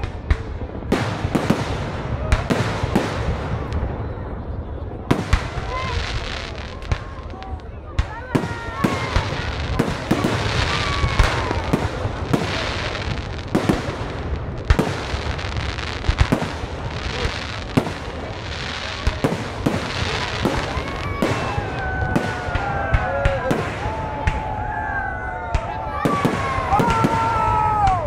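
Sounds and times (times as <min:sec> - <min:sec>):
sharp bangs and pops: 0:00.0 - 0:03.9, 0:05.1 - 0:24.5.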